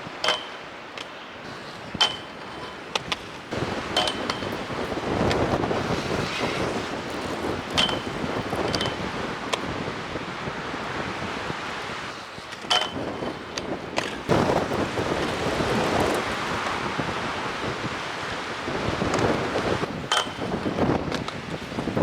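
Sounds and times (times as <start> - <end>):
strong gusting wind on microphone: 1.4 - 22.0.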